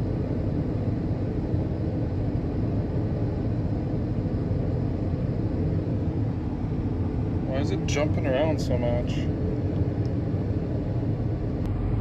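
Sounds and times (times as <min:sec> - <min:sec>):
combine harvester rumbling: 0:06.3 - 0:09.3.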